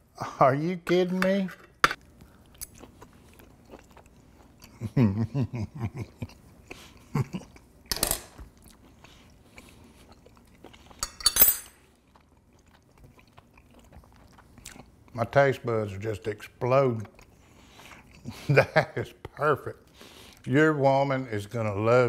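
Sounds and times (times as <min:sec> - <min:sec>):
man chewing: 0:02.0 - 0:11.1, 0:11.8 - 0:15.2, 0:17.0 - 0:18.8, 0:19.8 - 0:20.5.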